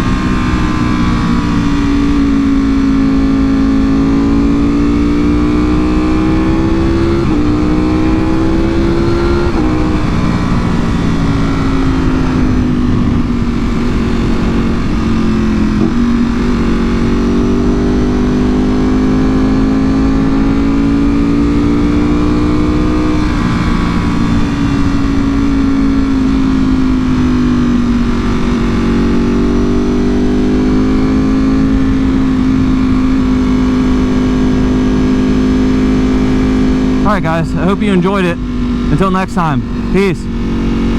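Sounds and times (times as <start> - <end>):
low wind rumble: 0.0 - 18.5
motorcycle engine revving: 0.0 - 37.2, 38.4 - 40.9.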